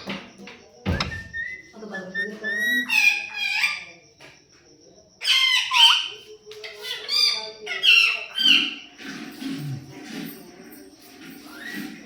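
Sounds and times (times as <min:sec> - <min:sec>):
parrot calling: 0:01.0 - 0:03.9.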